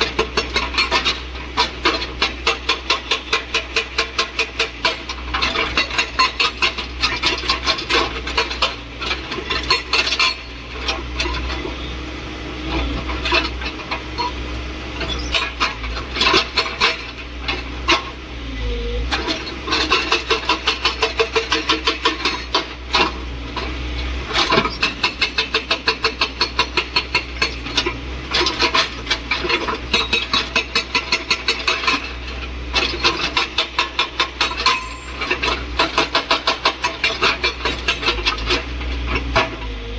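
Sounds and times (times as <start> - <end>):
excavator engine humming: 0.0 - 39.9
hydraulic breaker hammering: 32.8 - 38.4.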